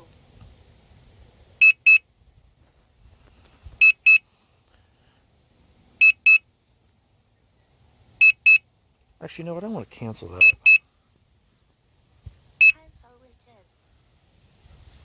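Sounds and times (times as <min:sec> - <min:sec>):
remote controller double beeps: 0:01.6 - 0:02.0, 0:03.8 - 0:04.2, 0:06.0 - 0:06.4, 0:08.2 - 0:08.6, 0:10.4 - 0:10.8.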